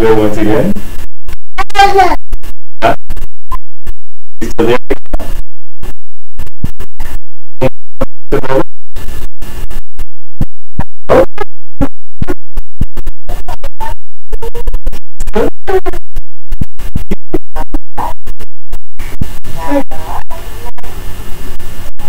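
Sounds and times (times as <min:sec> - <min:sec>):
distorted garbled call audio: 0:01.6 - 0:02.2, 0:07.6 - 0:08.7, 0:11.1 - 0:11.5, 0:19.0 - 0:21.6.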